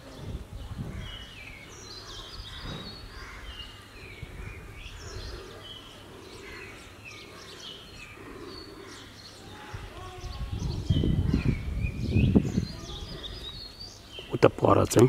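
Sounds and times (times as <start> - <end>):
small birds whistling: 4.0 - 14.4.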